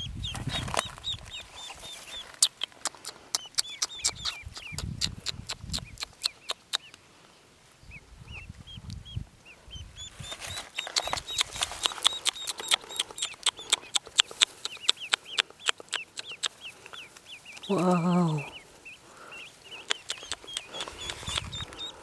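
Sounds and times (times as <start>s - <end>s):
ducklings peeping: 0.0s - 22.0s
sharp clicks: 2.2s - 7.0s, 10.4s - 17.7s, 19.7s - 21.9s.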